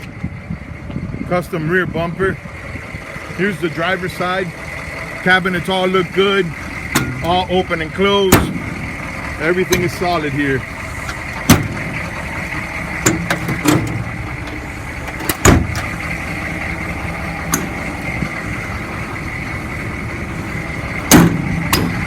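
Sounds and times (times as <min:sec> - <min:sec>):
latch clicks: 0:06.8 - 0:07.4, 0:13.0 - 0:16.0, 0:17.5 - 0:18.4
metal cabinet doors clanking: 0:11.4 - 0:11.9, 0:13.0 - 0:15.9, 0:21.1 - 0:22.0
cabinet doors slamming: 0:15.4 - 0:15.8.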